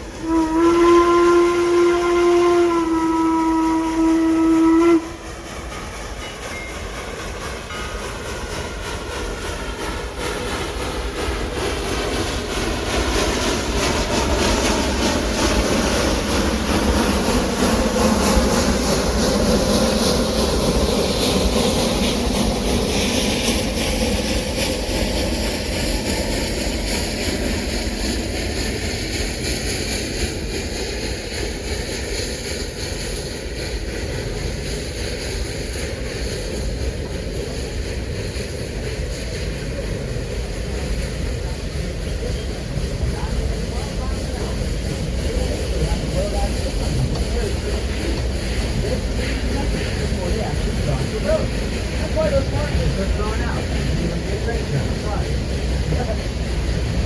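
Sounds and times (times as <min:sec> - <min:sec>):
steam whistle blast: 0:00.2 - 0:05.2
train wheels clattering on rails: 0:04.8 - 0:57.0.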